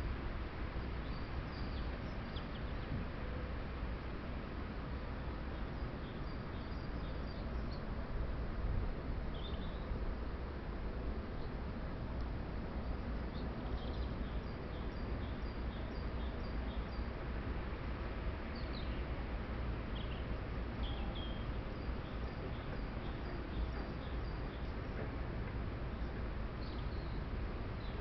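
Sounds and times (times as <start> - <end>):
background rumble and hiss: 0.0 - 28.0
small birds chirping: 19.9 - 25.0.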